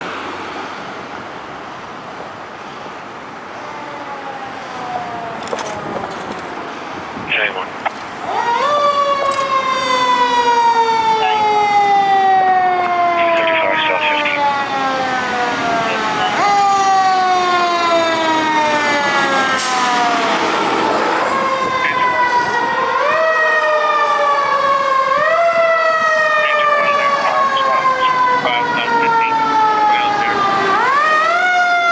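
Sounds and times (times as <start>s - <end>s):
street traffic: 0.0s - 31.9s
siren wailing: 7.3s - 31.9s.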